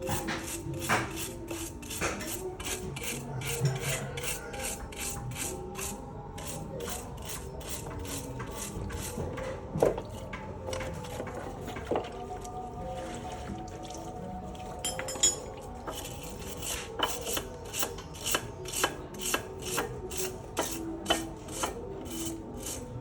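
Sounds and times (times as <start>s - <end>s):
rhythmic rubbing strokes: 0.0s - 14.9s, 15.6s - 23.0s.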